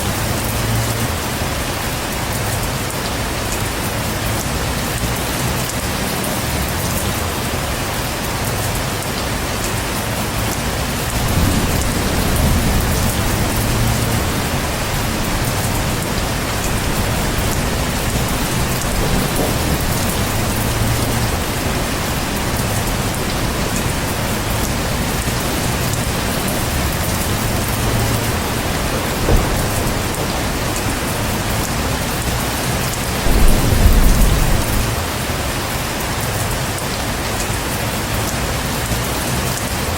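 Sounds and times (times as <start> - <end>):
heavy rain falling: 0.0 - 39.9
thunder rumbling: 9.7 - 36.1.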